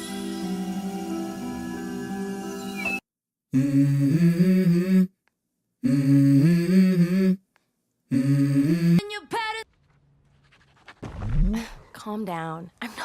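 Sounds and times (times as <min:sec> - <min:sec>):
person humming a melody: 0:03.5 - 0:05.2, 0:05.8 - 0:07.4, 0:08.1 - 0:09.0.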